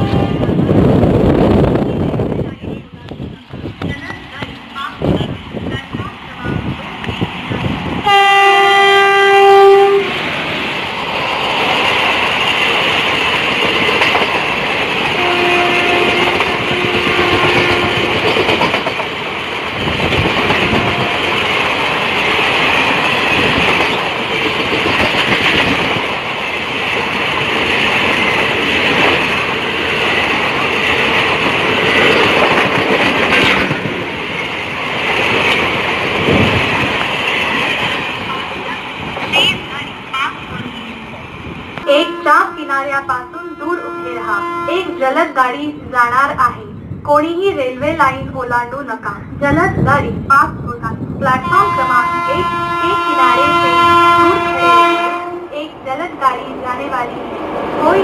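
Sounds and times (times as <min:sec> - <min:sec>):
train wheels clickety-clack on rails: 0:00.0 - 0:41.1
locomotive air horn blast: 0:08.0 - 0:10.2, 0:15.2 - 0:18.2, 0:20.4 - 0:21.4, 0:41.8 - 0:45.2, 0:51.4 - 0:55.5.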